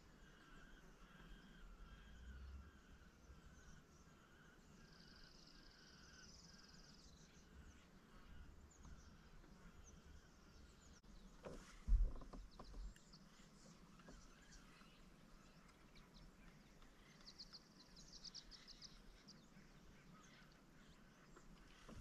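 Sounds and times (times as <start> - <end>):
faint bird calls: 0.0 - 22.0
low thump with knocks: 11.4 - 12.9.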